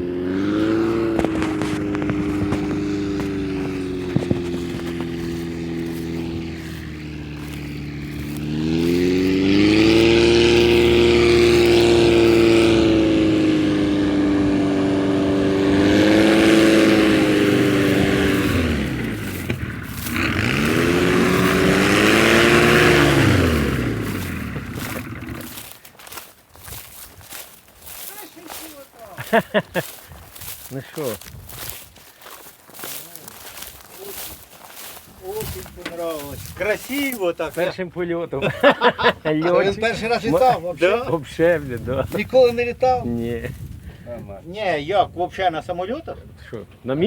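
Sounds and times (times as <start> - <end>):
light aircraft propeller engine: 0.0 - 25.8.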